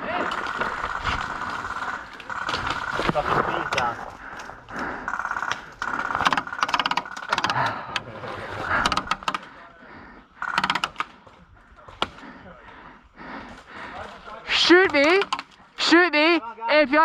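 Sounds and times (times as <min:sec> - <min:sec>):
airsoft guns firing bursts: 0:00.2 - 0:03.0, 0:05.1 - 0:07.6, 0:10.4 - 0:11.1.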